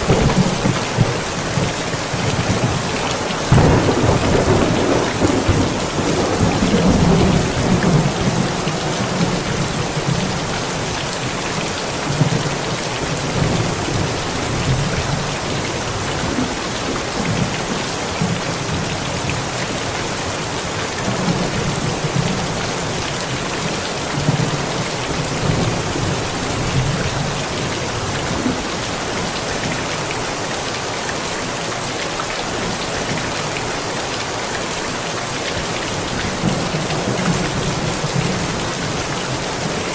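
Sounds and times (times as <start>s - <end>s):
thunder rumbling: 0.0s - 10.6s
steady rain: 0.0s - 39.9s.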